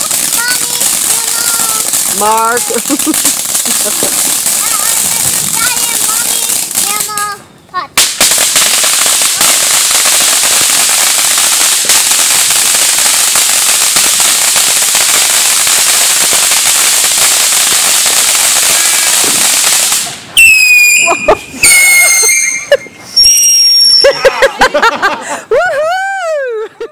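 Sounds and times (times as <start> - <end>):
faint crackle: 0.0 - 7.4
firework spraying sparks hissing: 0.0 - 24.2
short high-pitched squeals: 20.4 - 24.2.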